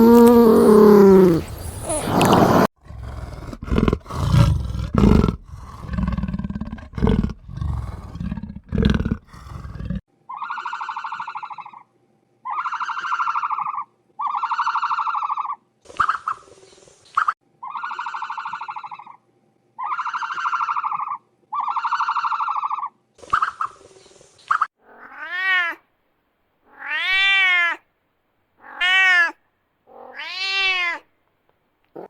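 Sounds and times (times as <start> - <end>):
wild animal growling and roaring: 0.0 - 10.0.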